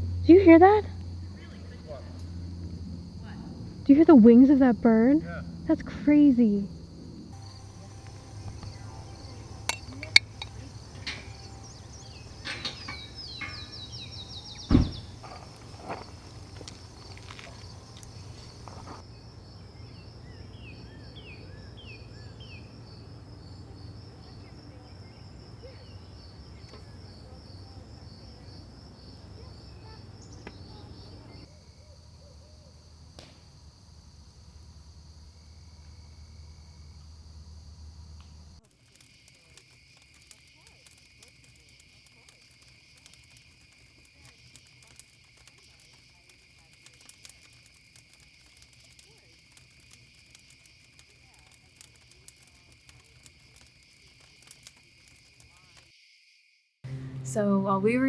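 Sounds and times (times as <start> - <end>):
insects trilling: 0.0 - 56.5
crickets chirping: 0.0 - 58.0
dull thump: 7.5 - 19.0
faint clicks: 38.2 - 55.9.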